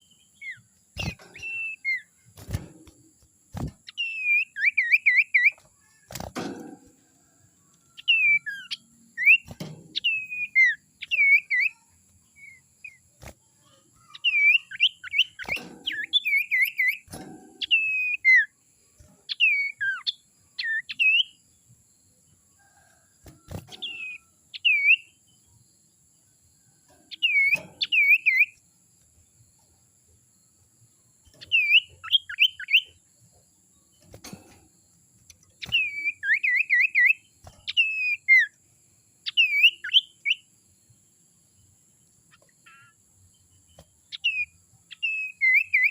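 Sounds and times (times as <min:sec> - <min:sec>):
bird singing whistled notes: 0:00.0 - 0:02.2, 0:03.8 - 0:05.6, 0:07.9 - 0:13.1, 0:14.1 - 0:18.6, 0:19.3 - 0:21.4, 0:23.7 - 0:25.2, 0:27.1 - 0:28.6, 0:31.4 - 0:33.0, 0:35.6 - 0:38.6, 0:39.2 - 0:40.5, 0:42.3 - 0:45.9.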